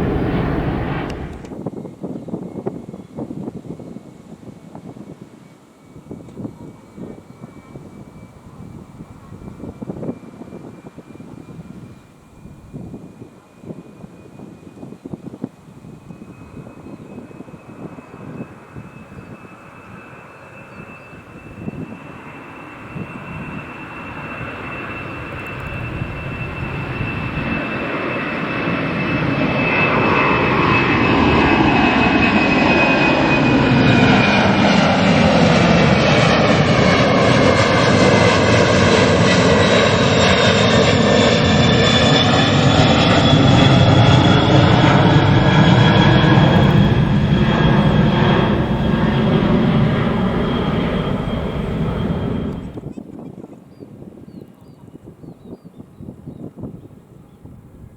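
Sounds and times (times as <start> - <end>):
jet engines rumbling at takeoff: 0.0 - 57.9
high whine falling in pitch: 41.7 - 52.9.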